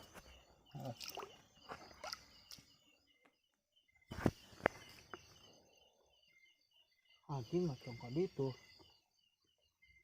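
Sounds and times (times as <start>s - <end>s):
insects or frogs chirping: 0.0s - 10.0s.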